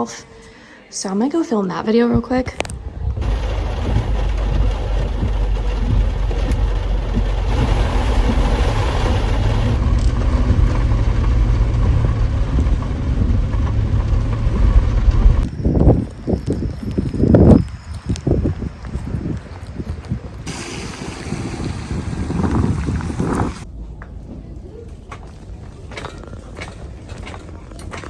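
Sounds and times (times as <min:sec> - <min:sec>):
car driving rumble and road noise: 0:02.6 - 0:18.7.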